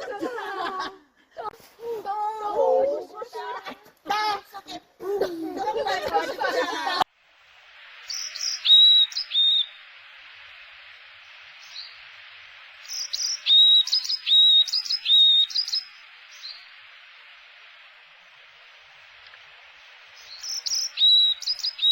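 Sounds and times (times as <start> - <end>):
background hiss: 0.0 - 21.9
songbird whistling: 8.1 - 9.8, 12.8 - 16.7, 20.2 - 21.9.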